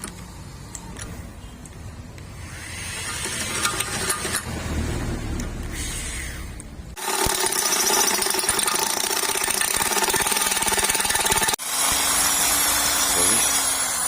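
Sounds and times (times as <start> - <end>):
power tool rattling buzz: 2.7 - 4.5, 7.0 - 14.0.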